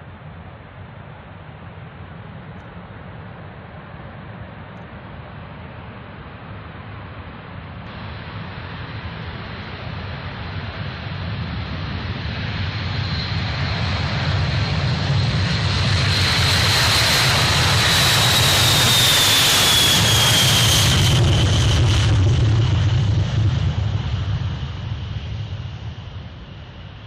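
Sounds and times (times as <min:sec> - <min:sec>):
jet aircraft flying past: 0:07.9 - 0:27.0.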